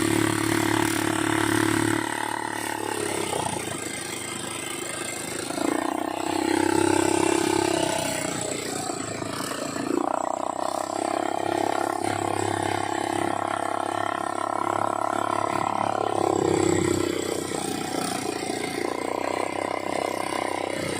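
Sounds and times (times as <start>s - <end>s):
all-terrain vehicle engine running: 0.0s - 20.9s.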